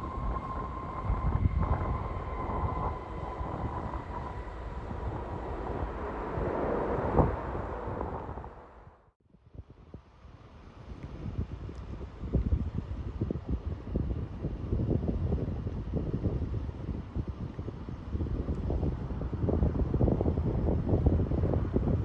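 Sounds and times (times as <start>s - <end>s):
jet airliner engines passing: 0.0s - 9.1s, 11.8s - 22.0s
wind buffeting microphone: 0.0s - 22.0s.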